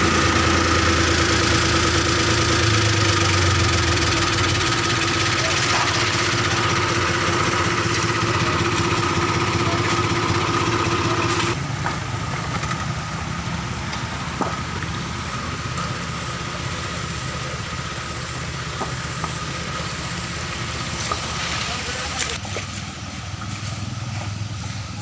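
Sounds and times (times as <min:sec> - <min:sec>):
engine running: 0:00.0 - 0:25.0.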